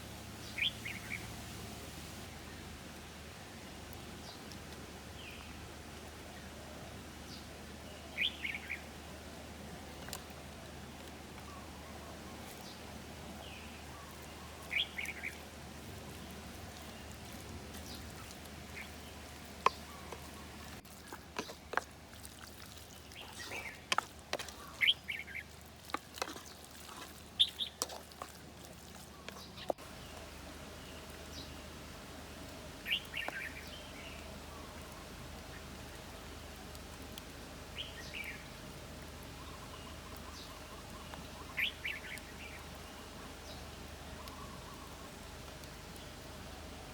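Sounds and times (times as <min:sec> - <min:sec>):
steady background hiss: 0:00.0 - 0:25.9, 0:29.1 - 0:46.9
birds chirping: 0:00.4 - 0:01.4, 0:11.3 - 0:21.9, 0:22.8 - 0:27.9, 0:28.9 - 0:36.7, 0:37.7 - 0:46.7.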